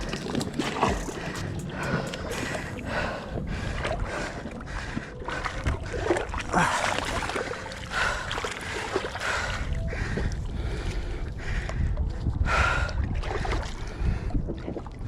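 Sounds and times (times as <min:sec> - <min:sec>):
water splashing and sloshing: 0:00.0 - 0:15.0
wind rumble on microphone: 0:00.0 - 0:15.0.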